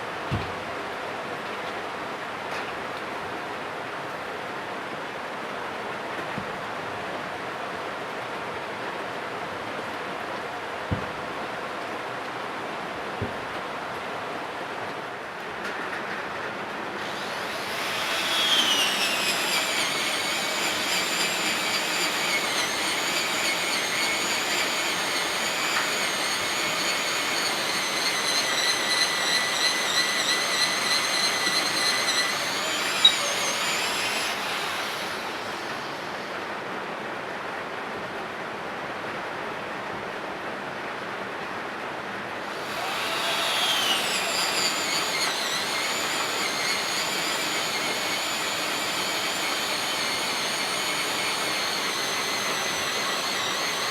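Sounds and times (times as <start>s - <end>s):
electric power tool motor whining: 17.0s - 36.4s, 42.5s - 53.9s.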